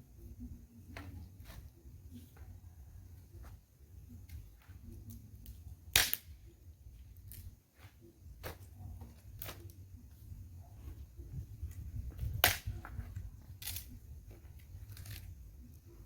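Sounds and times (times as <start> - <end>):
bonfire crackling: 1.4 - 10.4, 11.3 - 16.0
sharp fire pops: 5.4 - 6.5, 12.2 - 13.0
low fire rumble: 8.3 - 16.0.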